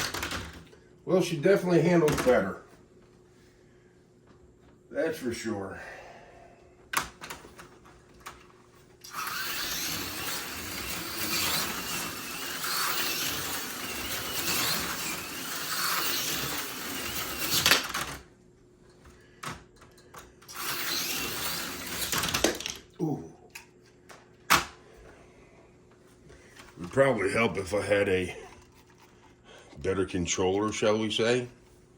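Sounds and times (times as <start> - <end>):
slot car motor buzzing and whining: 9.0 - 18.2, 20.5 - 22.6.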